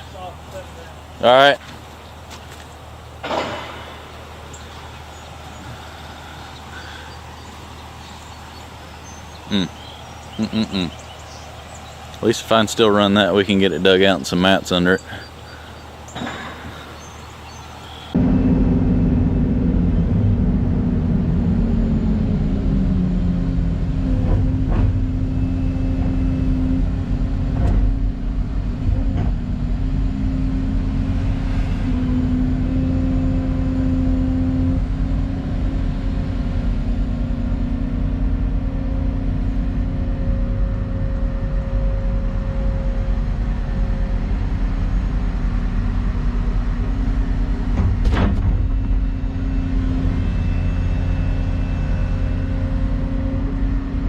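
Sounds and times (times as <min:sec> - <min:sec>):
excavator diesel engine running: 0:00.0 - 0:54.0
sharp metallic knocks: 0:03.2 - 0:04.4.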